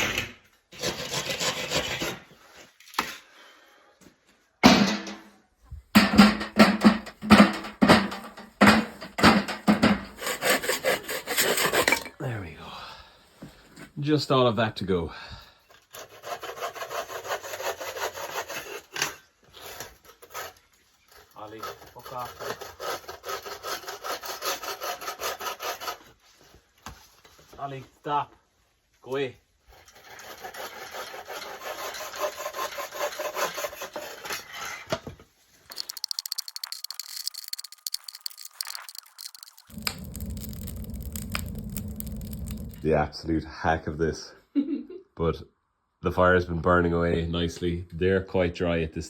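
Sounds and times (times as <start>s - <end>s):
hand saw cutting wood: 0.7s - 2.3s, 6.0s - 12.1s, 15.9s - 20.6s, 21.2s - 26.2s, 29.7s - 35.0s
sharp clicks: 35.7s - 42.8s.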